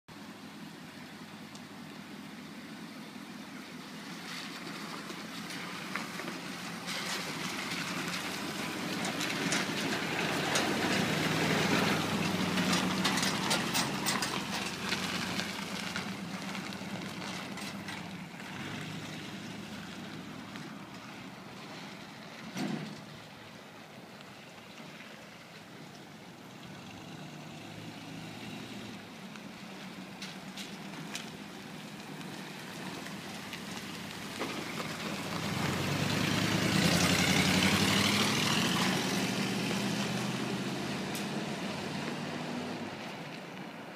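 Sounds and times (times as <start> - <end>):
truck engine running: 0.1 - 23.9.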